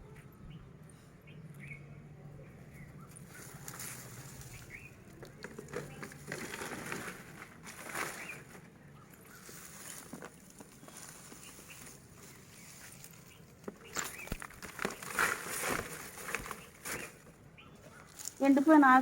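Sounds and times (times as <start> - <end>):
bird chirps: 0.0 - 5.2, 10.7 - 15.1, 16.4 - 18.4
soil rustled and scraped by hand: 3.0 - 19.0.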